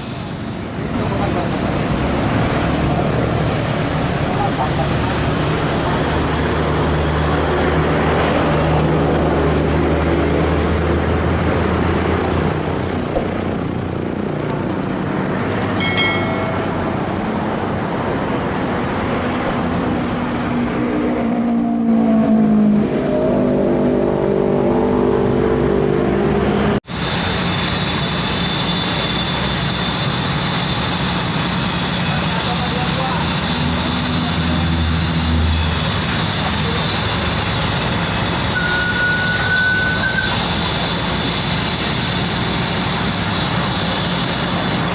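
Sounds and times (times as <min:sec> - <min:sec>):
excavator diesel engine straining: 0:26.9 - 0:44.9
short high squeal: 0:26.9 - 0:44.9.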